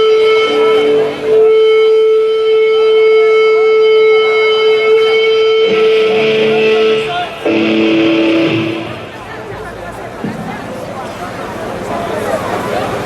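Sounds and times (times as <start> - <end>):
long held instrumental note: 0.0 - 9.8
rock band low notes: 4.6 - 9.8.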